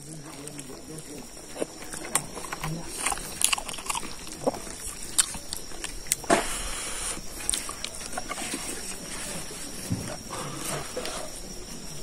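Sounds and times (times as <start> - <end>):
wet chewing and lip-smacking: 0.2 - 6.3, 7.2 - 9.1.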